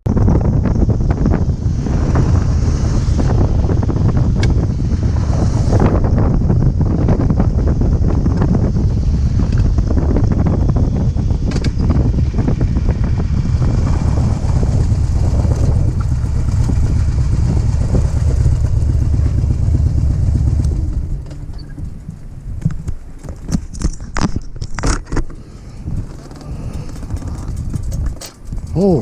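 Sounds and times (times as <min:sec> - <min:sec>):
motorcycle engine rumble: 0:00.0 - 0:29.0
wind noise: 0:00.0 - 0:29.0
sharp clicks and knocks: 0:11.5 - 0:11.9, 0:20.6 - 0:25.4, 0:26.0 - 0:28.8.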